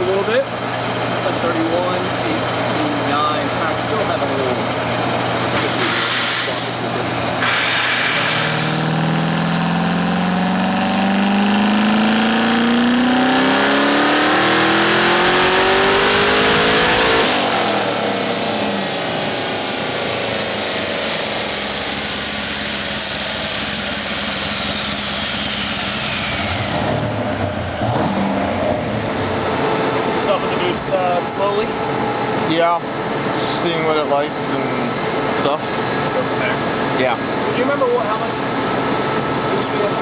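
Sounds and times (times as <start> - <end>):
car engine at full throttle: 4.9 - 33.8
turbo whine spooling down: 7.7 - 35.6.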